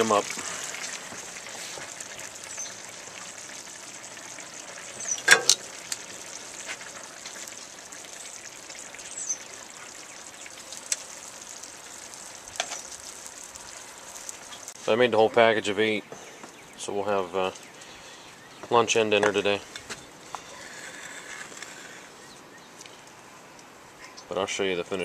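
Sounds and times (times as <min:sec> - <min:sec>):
sausages sizzling in a skillet: 0:00.0 - 0:15.5.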